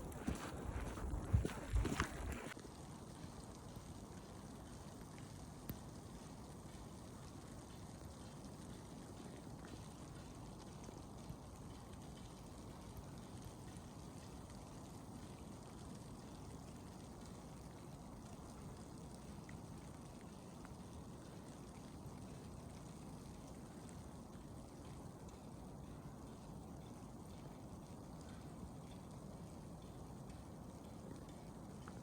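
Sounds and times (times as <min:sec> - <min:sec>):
blizzard wind rushing: 0:00.0 - 0:02.6
faint ticks: 0:00.0 - 0:32.0.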